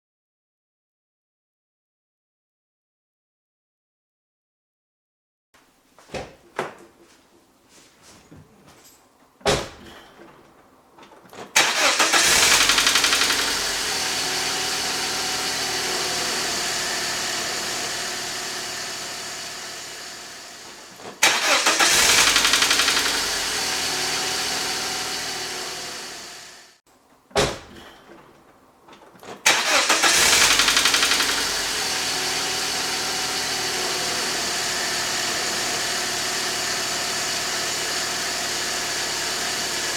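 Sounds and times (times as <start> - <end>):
car engine starting and idling: 9.5 - 26.8, 29.4 - 39.9
engine rattling: 11.6 - 26.6, 29.4 - 39.9.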